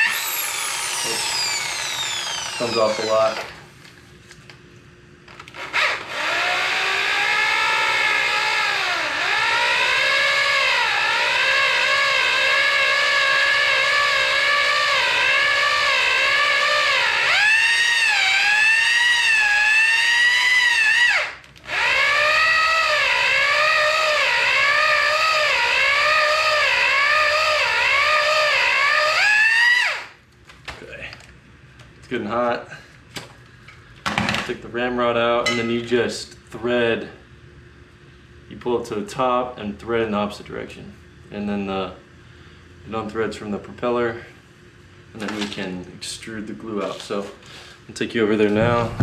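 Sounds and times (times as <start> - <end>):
electric drill motor whine: 0.0 - 3.6, 5.3 - 30.2.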